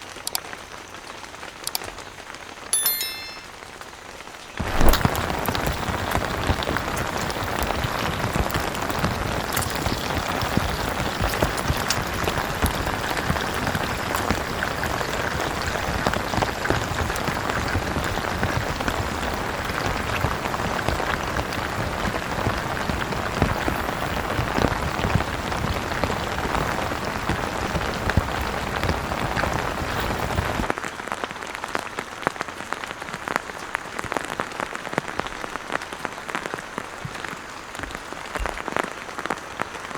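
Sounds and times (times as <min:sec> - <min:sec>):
heavy rain on a tent awning: 0:00.0 - 0:02.8, 0:03.7 - 0:39.9.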